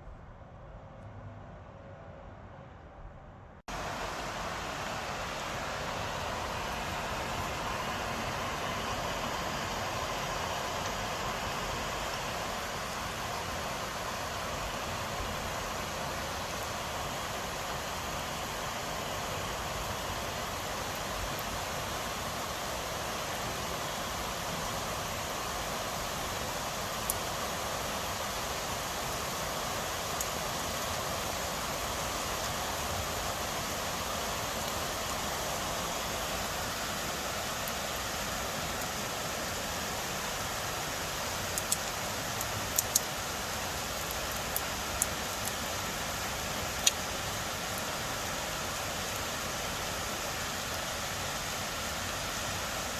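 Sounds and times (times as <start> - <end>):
steady rainfall: 3.7 - 52.9
raindrops ticking near microphone: 40.5 - 51.3.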